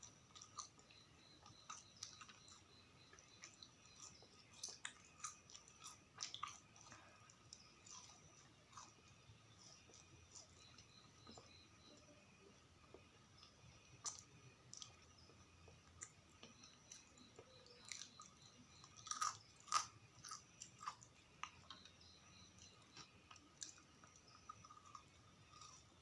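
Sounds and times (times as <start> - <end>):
wet chewing mouth sounds: 0.0 - 11.5
crunchy biting clicks: 15.9 - 22.0.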